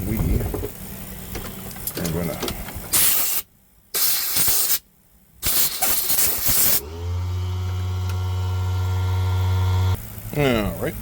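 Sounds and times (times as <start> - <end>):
short bursts of hissing: 2.9 - 4.8, 5.4 - 6.8
electric motor humming: 6.4 - 10.0.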